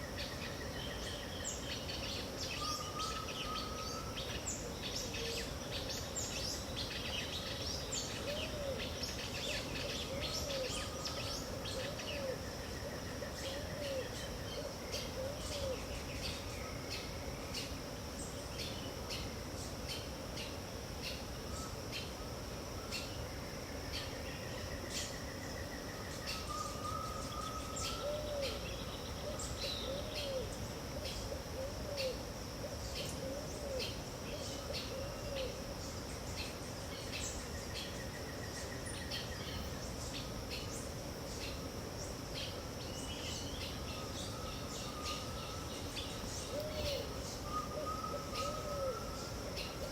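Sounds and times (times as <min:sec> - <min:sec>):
birds chirping: 0:42.4 - 0:49.9.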